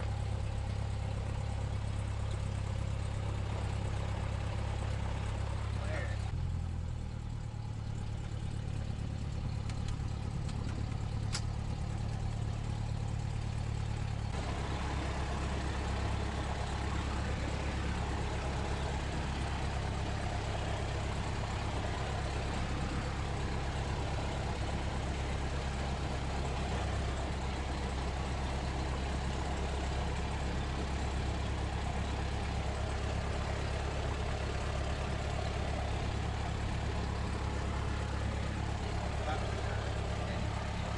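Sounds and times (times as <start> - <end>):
aircraft engine idling: 0.0 - 40.9.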